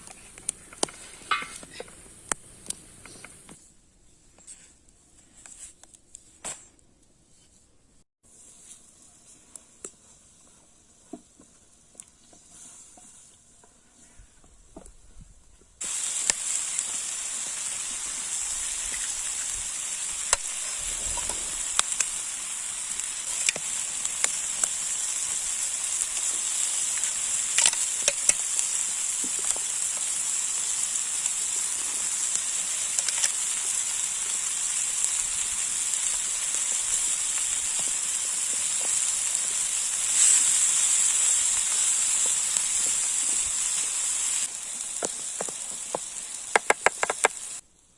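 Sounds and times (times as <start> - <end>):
food frying in hot fat: 15.8 - 47.6.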